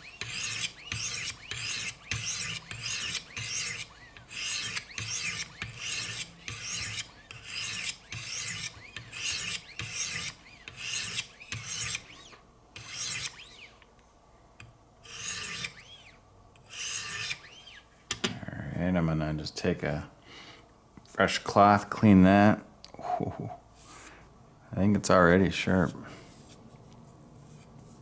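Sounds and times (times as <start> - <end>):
sharpening stones rasping on knife: 0.2 - 12.1, 15.0 - 15.8, 16.7 - 17.4.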